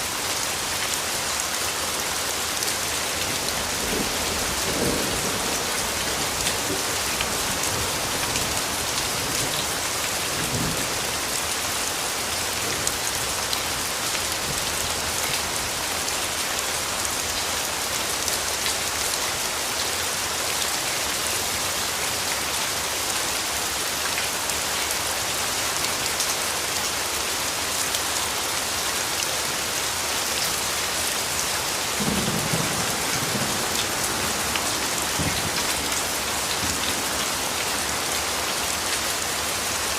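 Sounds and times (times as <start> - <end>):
steady rain falling: 0.0 - 39.9
distant thunder rumble: 32.0 - 37.3.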